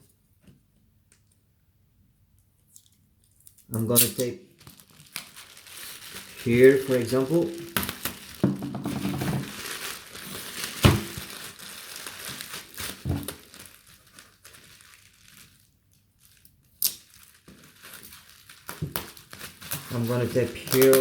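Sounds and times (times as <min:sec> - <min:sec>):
bubble wrap crinkling: 0:02.7 - 0:21.0
packing tape: 0:02.8 - 0:15.6, 0:16.2 - 0:21.0.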